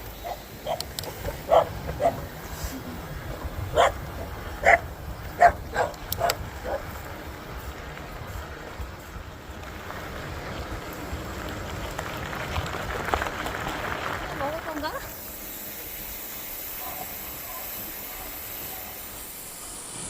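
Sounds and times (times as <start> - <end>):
dog barking: 0.2 - 2.3, 3.7 - 4.0, 4.6 - 6.9, 16.8 - 19.0.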